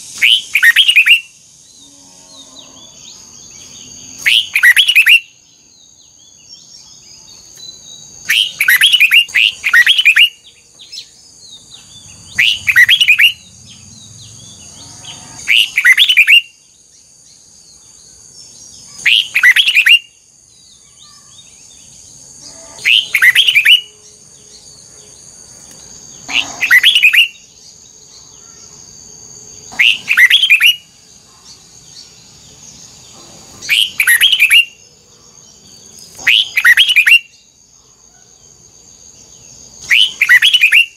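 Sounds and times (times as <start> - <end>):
bird singing warbled phrases: 0.0 - 1.4, 2.4 - 40.9.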